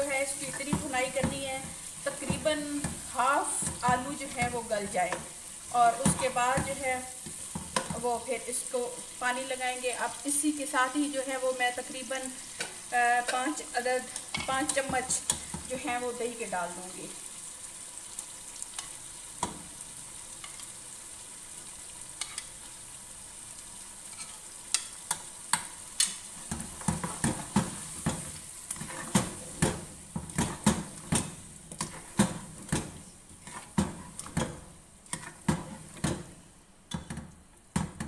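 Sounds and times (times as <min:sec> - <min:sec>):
food sizzling in a pot: 0:00.0 - 0:38.0
spatula scraping and knocking pot: 0:24.1 - 0:36.3.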